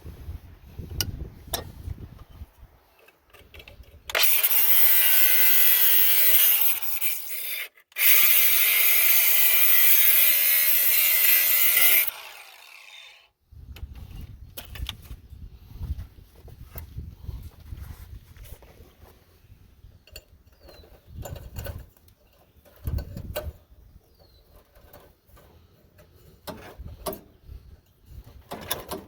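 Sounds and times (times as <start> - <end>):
angle grinder cutting wire: 4.1 - 13.3.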